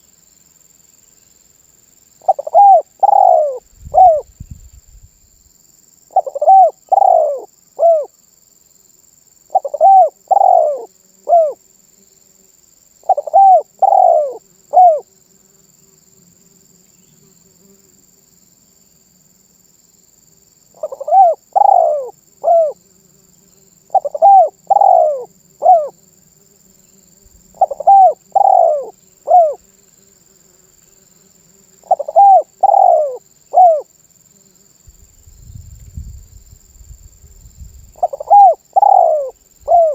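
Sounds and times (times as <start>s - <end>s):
dove cooing: 2.2s - 4.3s, 6.1s - 8.1s, 9.5s - 11.6s, 13.0s - 15.1s, 20.8s - 22.8s, 23.9s - 26.0s, 27.5s - 29.6s, 31.8s - 33.9s, 38.0s - 39.9s.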